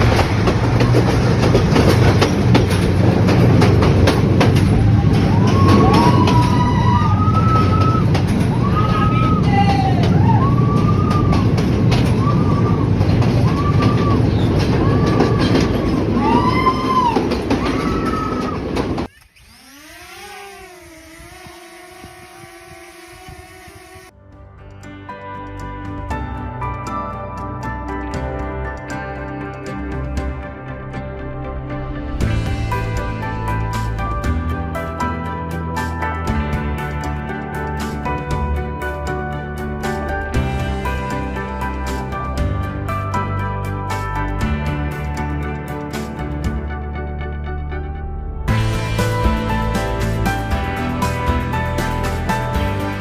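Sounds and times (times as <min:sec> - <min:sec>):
short high rising falling notes: 0:10.4 - 0:24.3.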